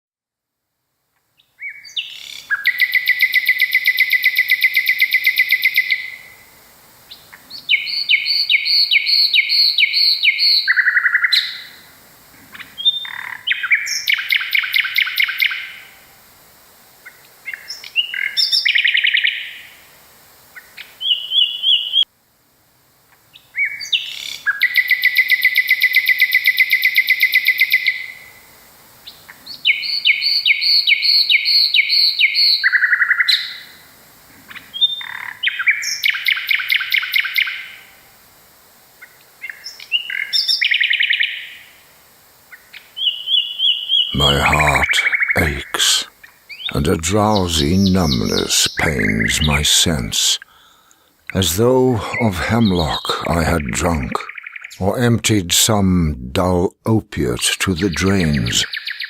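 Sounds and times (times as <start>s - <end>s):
nightingale singing: 42.5s - 46.8s, 47.4s - 51.4s, 57.8s - 59.0s.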